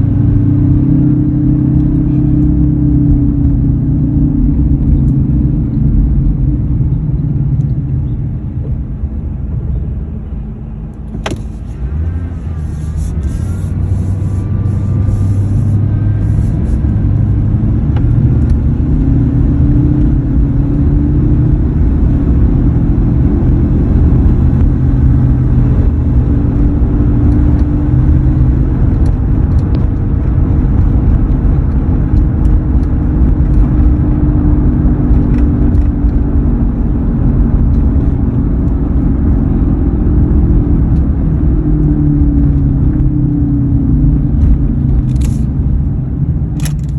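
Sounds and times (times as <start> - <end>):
rising hum: 0.0 - 46.5
road and drivetrain rumble: 0.0 - 46.9
sharp click: 45.0 - 45.5.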